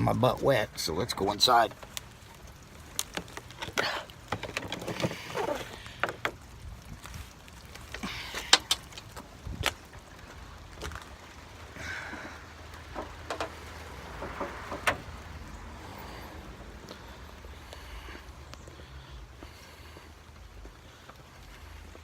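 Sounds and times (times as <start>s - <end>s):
rain hissing: 0.0s - 22.0s
rustling: 1.6s - 15.2s.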